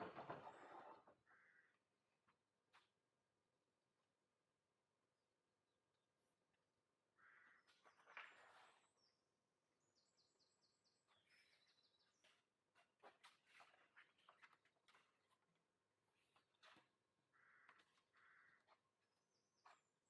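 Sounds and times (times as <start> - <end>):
bird chirps: 7.2 - 14.5.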